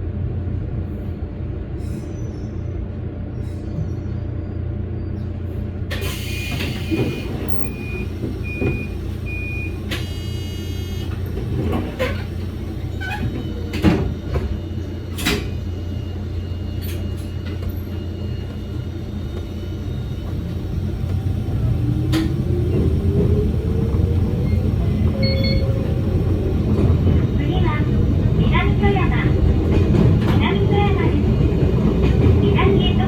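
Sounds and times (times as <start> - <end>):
electric train humming: 4.7 - 33.0.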